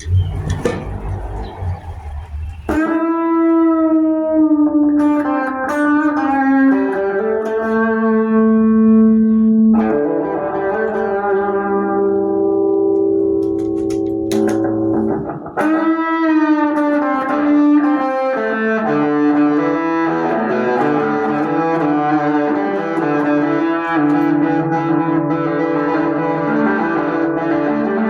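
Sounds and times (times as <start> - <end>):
clean electric guitar chords: 2.7 - 28.0.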